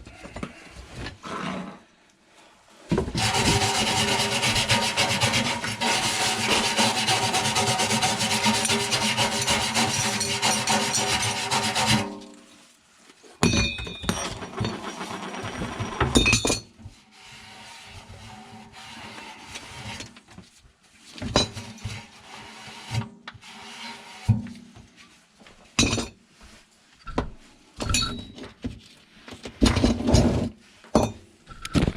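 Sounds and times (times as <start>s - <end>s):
loud scraping: 3.2s - 12.3s, 14.2s - 16.2s
tools knocking and clinking: 13.4s - 16.8s.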